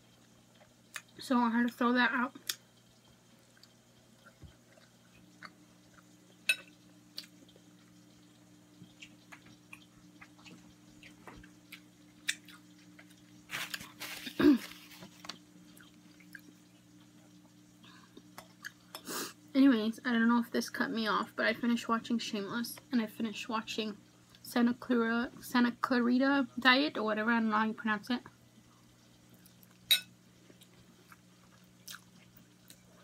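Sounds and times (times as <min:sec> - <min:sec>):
soft chewing: 0:03.4 - 0:06.4, 0:08.8 - 0:17.4, 0:18.0 - 0:19.1, 0:28.7 - 0:33.0
rustling: 0:13.5 - 0:15.3.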